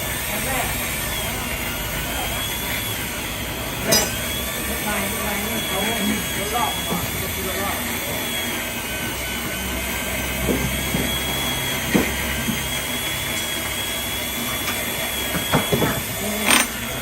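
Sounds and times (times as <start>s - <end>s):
workshop machinery hum: 0.0s - 17.0s
faint high whine: 0.3s - 8.5s
clicks and knocks of tools: 3.8s - 4.2s, 15.4s - 16.8s.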